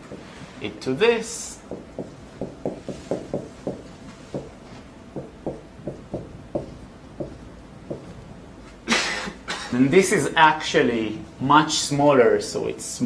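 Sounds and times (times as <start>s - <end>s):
chalk tapping on board: 1.7s - 8.2s.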